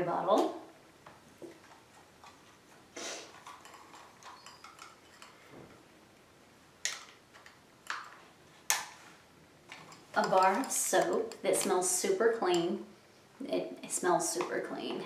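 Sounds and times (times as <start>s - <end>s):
plastic pieces clicking and knocking: 6.8s - 8.9s.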